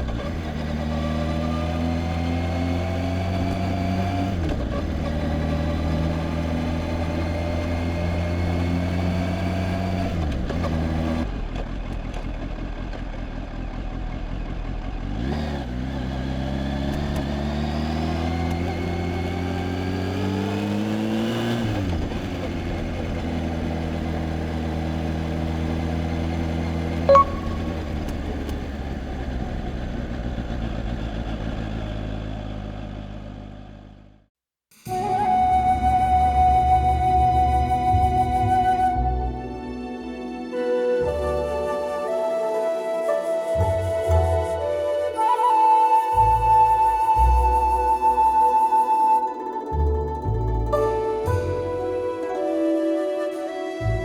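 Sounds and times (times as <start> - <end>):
motorcycle engine accelerating: 0.0 - 34.3
short sharp beep: 27.1 - 28.1.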